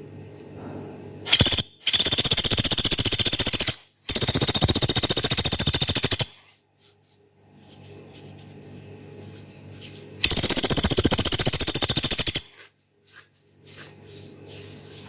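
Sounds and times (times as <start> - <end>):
woodpecker rattling trills: 1.3 - 6.4, 10.2 - 12.5.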